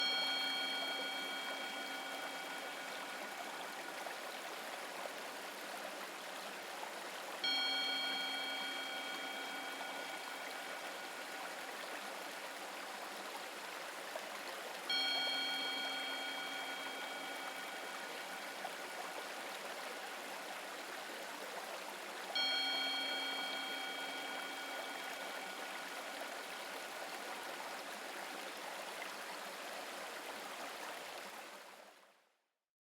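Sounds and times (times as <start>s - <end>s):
bell-like tone ringing: 0.0s - 4.2s, 7.4s - 11.8s, 14.9s - 19.3s, 22.4s - 27.2s
stream water rushing: 0.0s - 32.0s.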